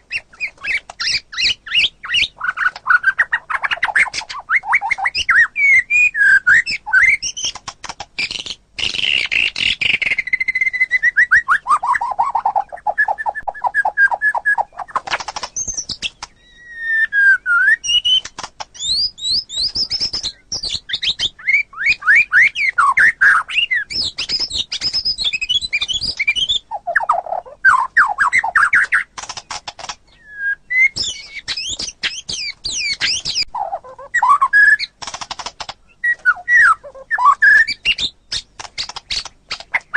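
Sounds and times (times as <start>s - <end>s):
bird singing whistled phrases: 0.1s - 7.5s, 8.2s - 15.0s, 15.6s - 29.1s, 30.1s - 35.0s, 36.0s - 39.7s
sharp bird clicking: 6.5s - 16.4s, 17.8s - 27.3s, 28.0s - 30.1s, 30.8s - 33.5s, 34.2s - 39.9s.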